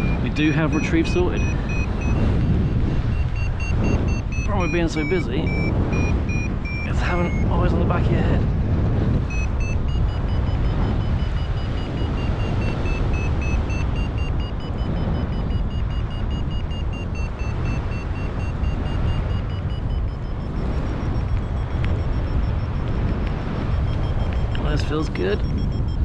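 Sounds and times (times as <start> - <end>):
variometer beeping rapidly: 0.0 - 26.0
wind buffeting microphone: 0.0 - 26.0.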